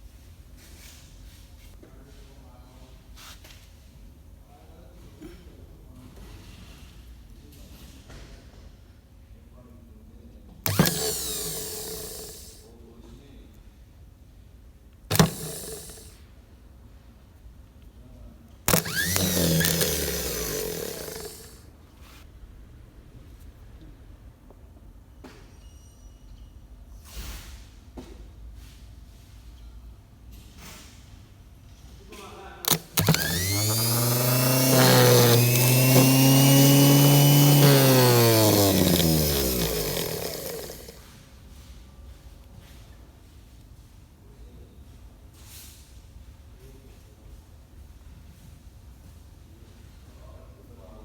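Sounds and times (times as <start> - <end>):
sharp click: 10.7 - 12.6, 15.1 - 16.2, 18.7 - 21.6, 32.7 - 41.0
starter motor whirring: 10.7 - 12.6, 15.1 - 16.2, 18.7 - 21.6, 32.7 - 41.0.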